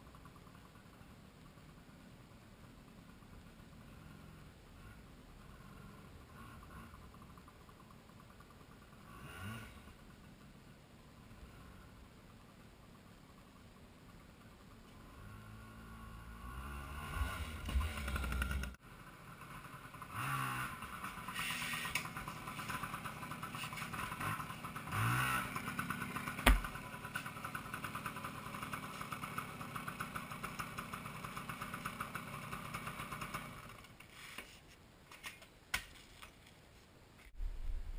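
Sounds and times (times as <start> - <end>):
two-stroke motorbike engine revving: 8.6 - 10.1, 14.6 - 33.8.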